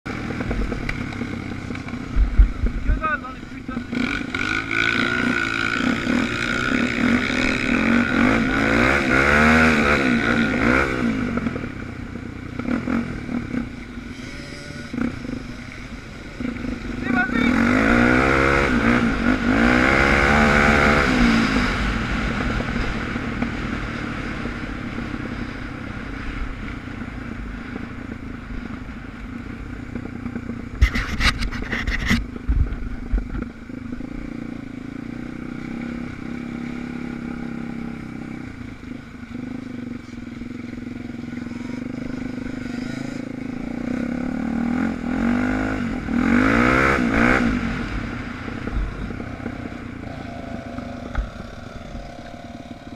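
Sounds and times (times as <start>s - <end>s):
dirt bike engine revving: 0.1s - 26.2s, 33.2s - 52.9s.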